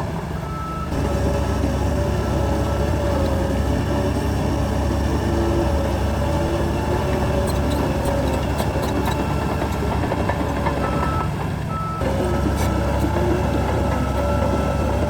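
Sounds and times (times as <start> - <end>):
heavy diesel machinery running: 0.0 - 15.0
reversing alarm beeping: 0.5 - 3.0, 10.7 - 15.0.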